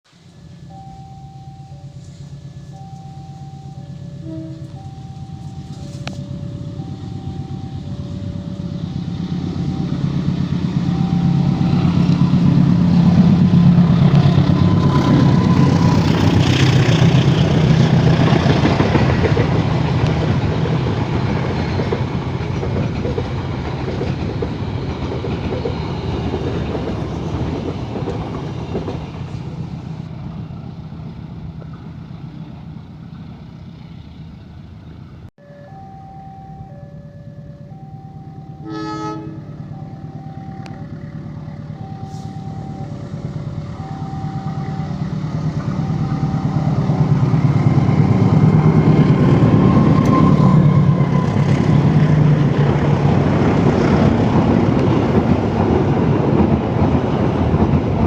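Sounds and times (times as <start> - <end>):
locomotive engine hum: 0.1 - 58.0
level-crossing alarm ding-dong: 0.3 - 13.4, 35.4 - 51.3
train wheel clatter: 9.7 - 29.9.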